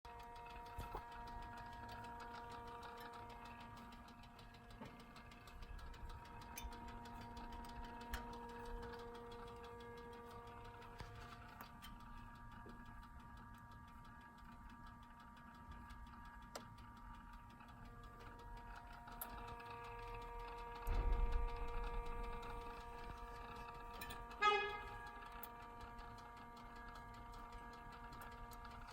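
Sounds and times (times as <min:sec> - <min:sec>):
cooling engine ticking: 0:00.0 - 0:28.9
faint steady hum: 0:00.1 - 0:28.9.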